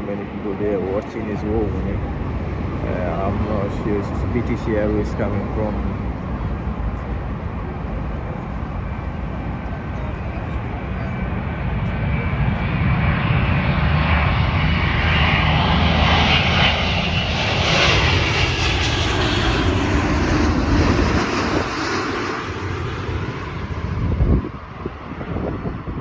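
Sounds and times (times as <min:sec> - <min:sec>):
jet airliner engine roar: 0:00.0 - 0:26.0
wind buffeting microphone: 0:20.4 - 0:22.2, 0:23.2 - 0:26.0.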